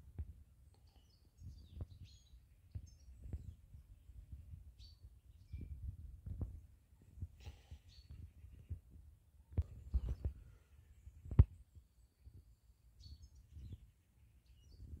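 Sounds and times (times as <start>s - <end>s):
small birds chirping: 0.1s - 15.0s
soft low thumps and rumble: 1.4s - 7.4s.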